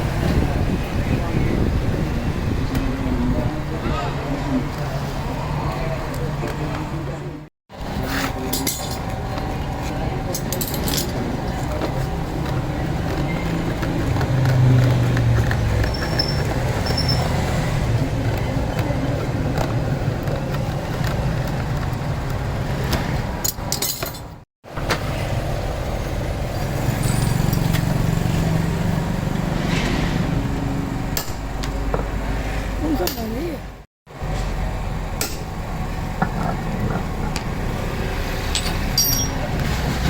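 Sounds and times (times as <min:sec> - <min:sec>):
low mechanical rumble: 0:33.6 - 0:40.0.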